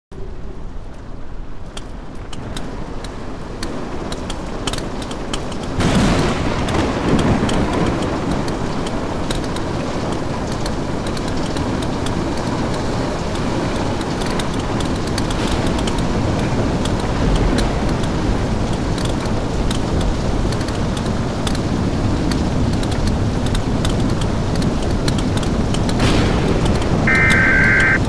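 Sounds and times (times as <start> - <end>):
heavy rain: 0.2 - 28.0
drops ticking: 26.7 - 28.0.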